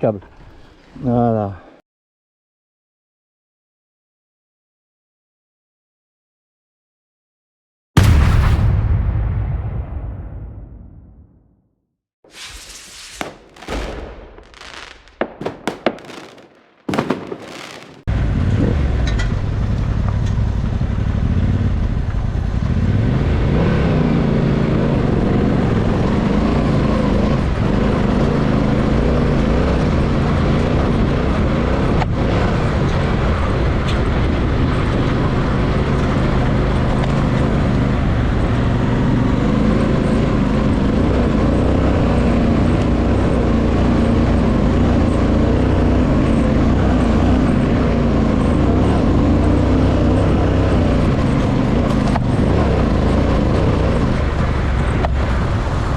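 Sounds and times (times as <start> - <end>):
sharp whooshing bursts: 12.3 - 18.1.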